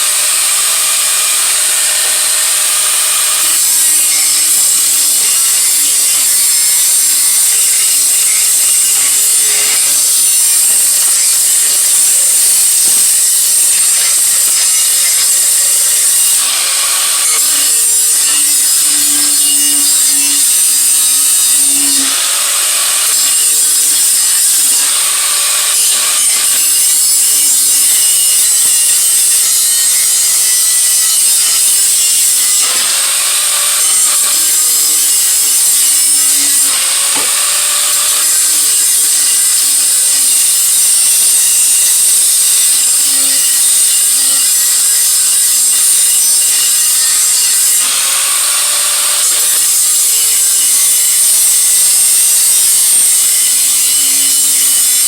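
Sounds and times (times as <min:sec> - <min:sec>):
power grinder grinding metal: 0:00.0 - 0:55.0.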